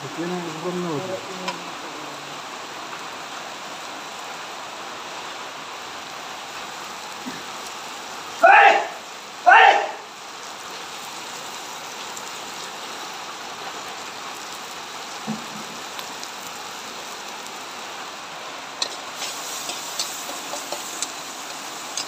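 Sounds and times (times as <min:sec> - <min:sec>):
vegetables sizzling in hot oil: 0:00.0 - 0:08.4, 0:09.0 - 0:09.4, 0:10.1 - 0:22.0
dull knock: 0:15.3 - 0:15.8
spatula scraping a wok: 0:18.8 - 0:22.0.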